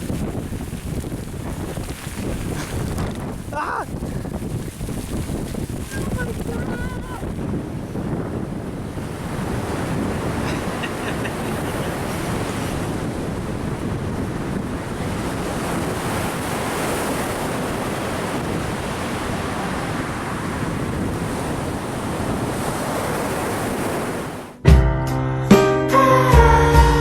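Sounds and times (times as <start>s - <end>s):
ocean surf rushing: 0.0s - 24.6s
wind buffeting microphone: 0.0s - 24.6s
music: 24.6s - 27.0s.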